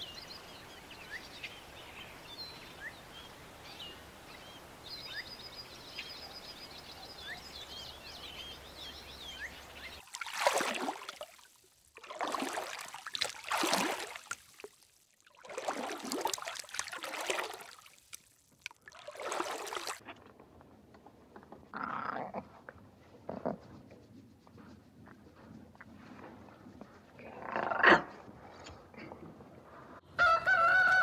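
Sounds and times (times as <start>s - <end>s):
water sloshing and splashing: 10.0s - 20.5s.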